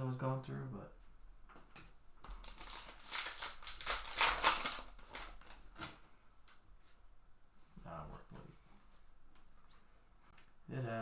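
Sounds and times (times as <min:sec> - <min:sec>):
card packs crinkling and rustling: 0:02.2 - 0:06.6.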